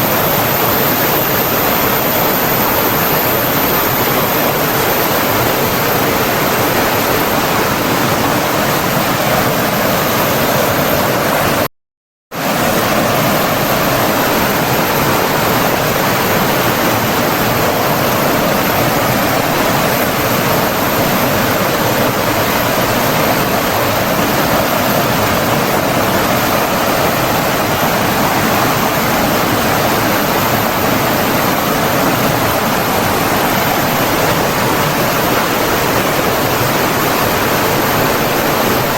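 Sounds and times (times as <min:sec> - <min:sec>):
rushing stream water: 0:12.4 - 0:38.9.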